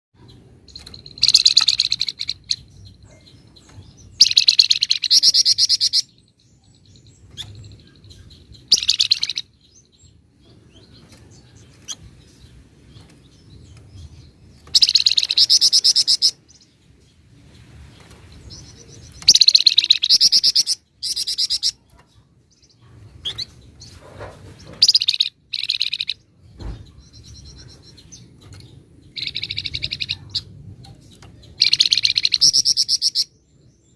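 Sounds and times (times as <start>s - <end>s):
songbird chattering trills: 0.2s - 33.9s
bird single calls: 14.7s - 16.5s.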